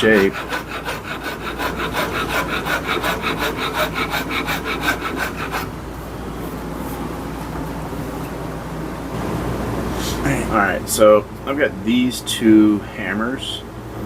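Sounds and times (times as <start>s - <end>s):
hand file rasping on wood: 0.0s - 5.7s.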